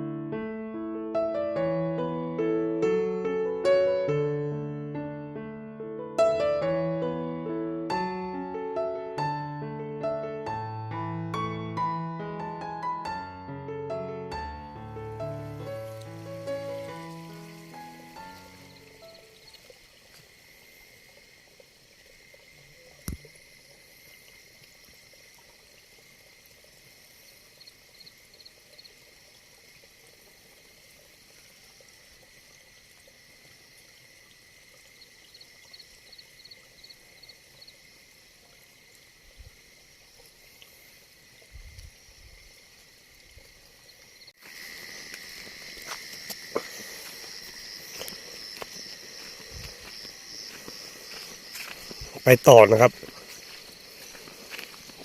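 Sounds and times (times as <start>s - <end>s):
insects chirring: 14.8s - 55.0s.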